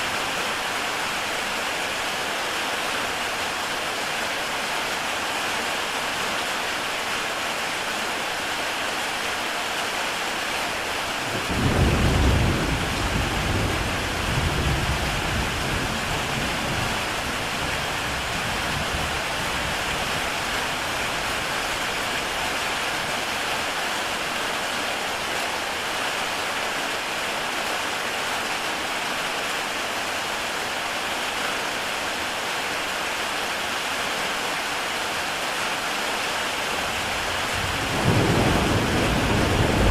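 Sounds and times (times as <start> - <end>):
heavy rain on a tile roof: 0.0 - 39.9
thunder rumbling: 11.3 - 20.3, 36.9 - 39.9.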